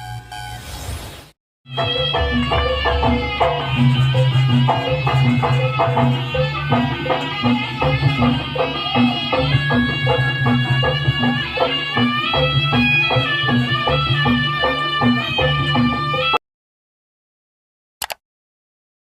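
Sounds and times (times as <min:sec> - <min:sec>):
hand drums beating: 0:01.7 - 0:16.1.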